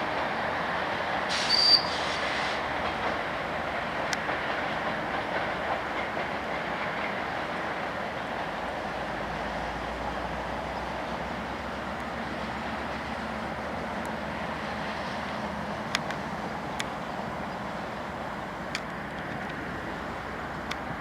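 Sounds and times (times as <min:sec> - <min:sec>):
train wheels on rails: 0:00.0 - 0:21.0
clacks over rail joints: 0:02.1 - 0:09.0, 0:11.1 - 0:21.0.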